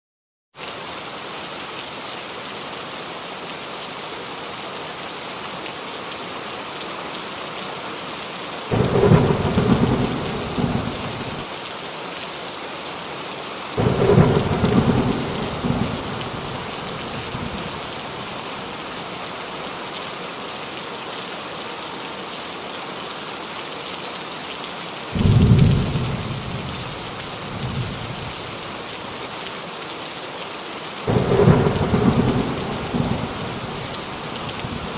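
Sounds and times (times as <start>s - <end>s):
heavy rain on a roof: 0.6s - 34.9s
rolling thunder: 8.7s - 11.4s, 13.8s - 18.2s, 25.2s - 26.8s, 31.1s - 34.9s.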